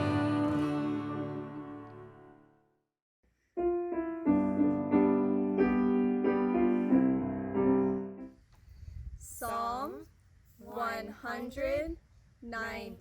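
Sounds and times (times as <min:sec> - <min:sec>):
piano playing chords: 0:00.0 - 0:02.4, 0:03.6 - 0:08.3
gospel song chord: 0:00.0 - 0:02.5.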